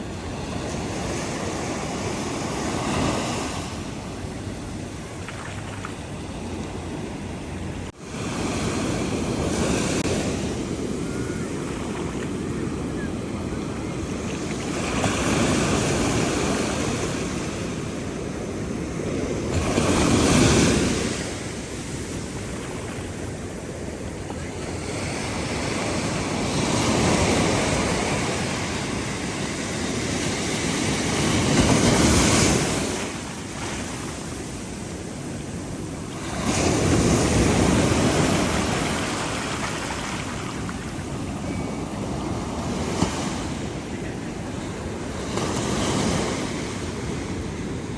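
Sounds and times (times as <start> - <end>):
ocean surf breaking: 30.4 - 46.8.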